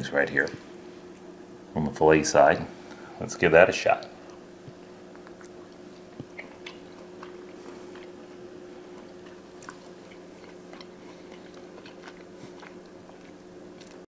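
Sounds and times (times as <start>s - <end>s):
person chewing: 4.0s - 14.0s.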